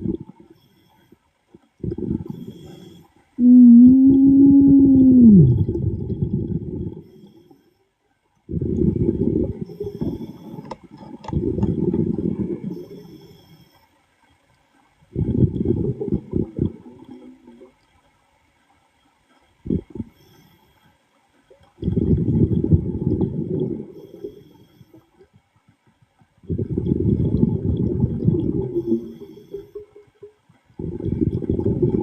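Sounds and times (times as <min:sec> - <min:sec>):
regulator bubbles underwater: 0:00.0 - 0:07.6, 0:08.4 - 0:20.6, 0:21.4 - 0:32.0.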